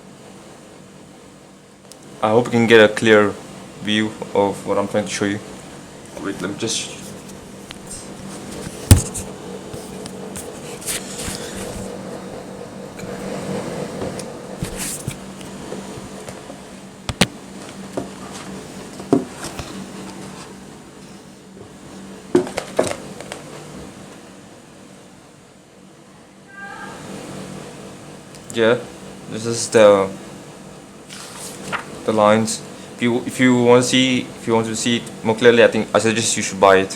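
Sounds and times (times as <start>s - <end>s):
steady low hum: 0.0s - 36.9s
knocks and taps on microphone: 8.6s - 9.3s, 17.1s - 17.3s.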